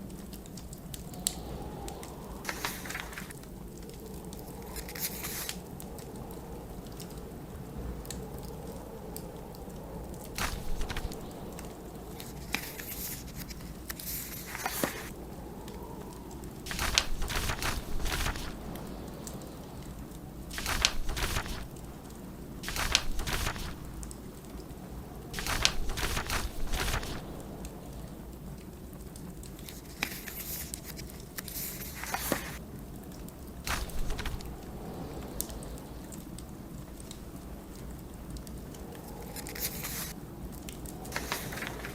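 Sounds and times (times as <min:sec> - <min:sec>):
snowstorm wind rumbling: 0:00.0 - 0:41.9
wood fire crackling: 0:00.0 - 0:41.9
book pages turning: 0:02.4 - 0:03.4, 0:04.6 - 0:05.6, 0:10.4 - 0:11.6, 0:12.2 - 0:15.1, 0:16.7 - 0:18.6, 0:20.6 - 0:21.8, 0:22.6 - 0:24.0, 0:25.4 - 0:27.4, 0:29.6 - 0:32.6, 0:33.7 - 0:34.5, 0:39.3 - 0:40.1, 0:41.1 - 0:41.9.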